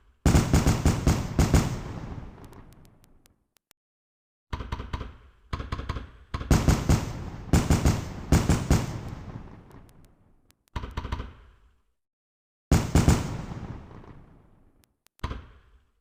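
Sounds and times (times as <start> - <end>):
fireworks crackling: 6.7 - 10.0.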